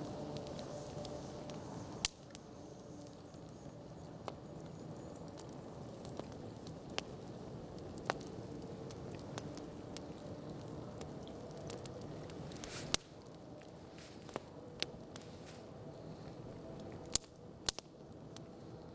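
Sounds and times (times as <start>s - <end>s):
low hiss: 0.0s - 10.8s
burning wood popping: 0.0s - 18.1s
campfire crackling: 0.0s - 18.9s.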